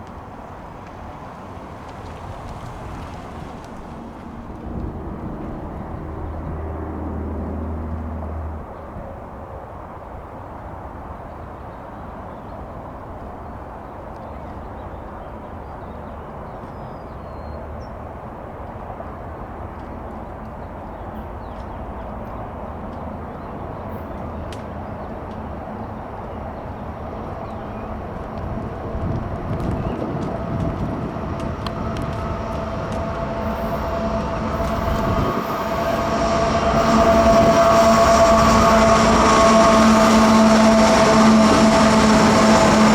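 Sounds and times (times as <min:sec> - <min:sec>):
wheels clicking on rails: 0:00.0 - 0:05.6, 0:19.8 - 0:42.9
freight train approaching: 0:00.0 - 0:42.9
steady tones: 0:30.4 - 0:42.9.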